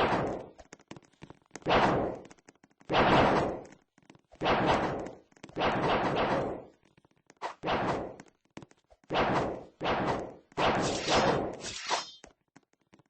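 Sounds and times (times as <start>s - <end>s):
gunshots: 0.0s - 0.5s, 1.6s - 2.2s, 2.9s - 3.7s, 4.4s - 6.7s, 7.4s - 8.2s, 9.1s - 12.2s.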